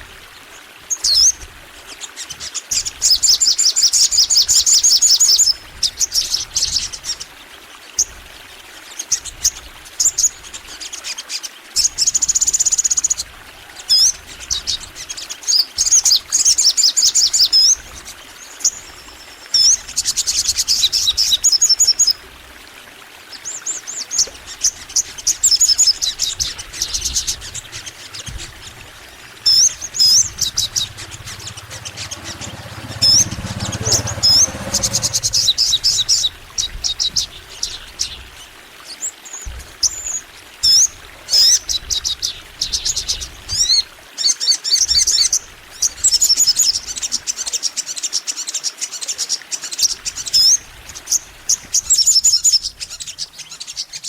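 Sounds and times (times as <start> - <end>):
bird singing chirps and trills: 0.8 - 22.4, 23.2 - 54.0
low rumble: 26.0 - 37.9.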